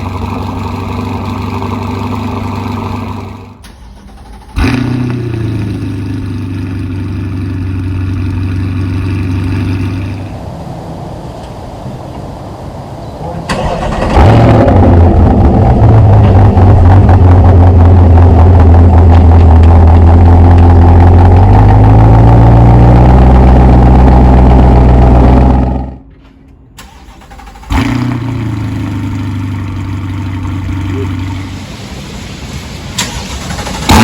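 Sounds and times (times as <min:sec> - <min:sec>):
car engine idling loudly: 0:00.0 - 0:10.4, 0:14.8 - 0:22.3, 0:27.2 - 0:31.6.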